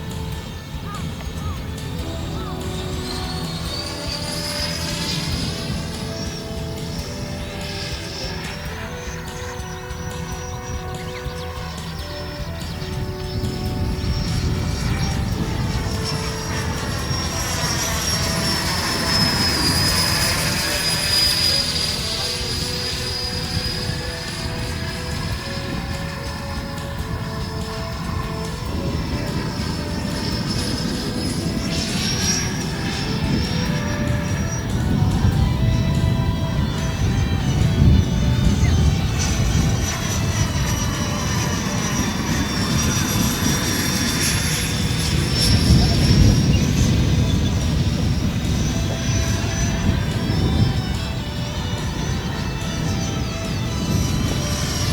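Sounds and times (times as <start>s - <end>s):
model jet fan whining: 0.0s - 54.9s.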